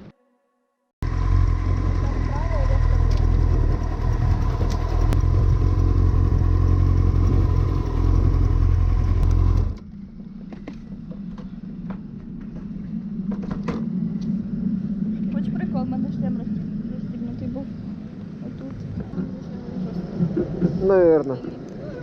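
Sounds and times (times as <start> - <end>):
motorcycle riding: 1.0 - 11.3
wind rumble on microphone: 10.4 - 22.0.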